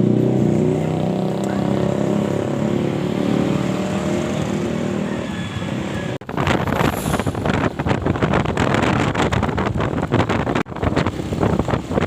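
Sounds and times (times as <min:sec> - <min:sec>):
wind buffeting microphone: 0:06.0 - 0:12.0.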